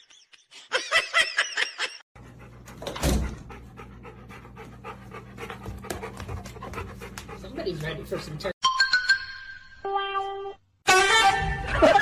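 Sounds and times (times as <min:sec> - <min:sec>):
dog panting: 0:02.2 - 0:08.6.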